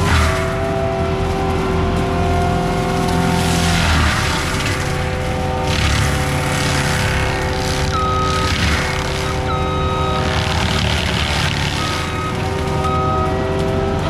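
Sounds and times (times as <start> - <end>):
diesel engine under load: 0.0 - 14.0
mulching head grinding: 0.0 - 14.0.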